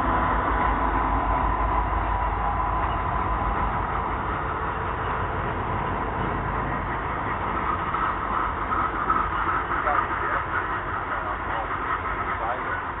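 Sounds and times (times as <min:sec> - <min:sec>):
train cars rolling on rails: 0:00.0 - 0:13.0.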